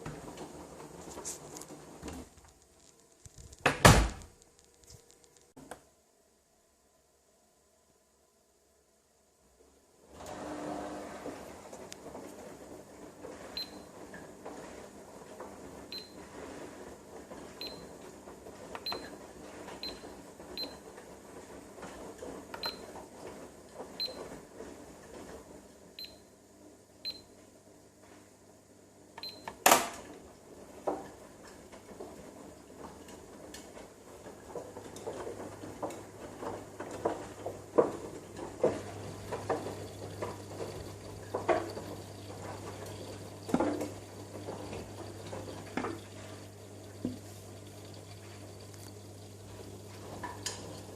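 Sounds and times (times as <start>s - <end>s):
washing machine running: 0.0s - 2.3s, 10.1s - 26.0s, 30.2s - 50.9s.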